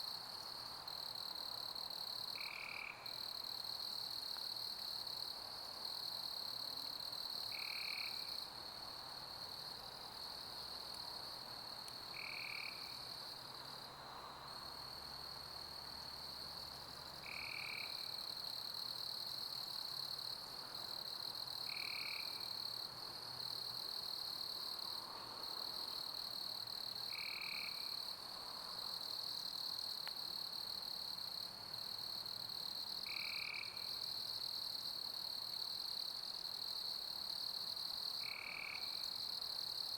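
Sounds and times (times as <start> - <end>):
crickets chirping: 0.0 - 39.9
short lower insect call: 2.2 - 3.3, 12.1 - 13.1, 17.2 - 18.4.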